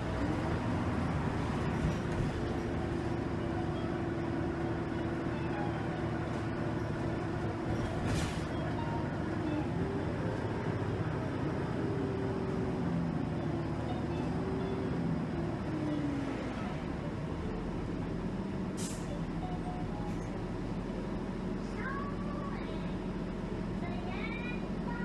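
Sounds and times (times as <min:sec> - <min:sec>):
engine whine: 0:00.0 - 0:23.9
bus engine and road drone: 0:00.0 - 0:25.0
short hiss: 0:18.8 - 0:19.1.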